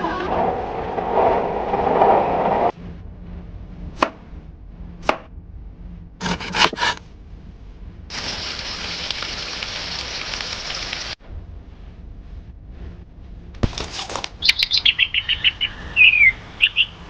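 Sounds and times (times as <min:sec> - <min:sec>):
food sizzling in frying: 0:08.1 - 0:11.2.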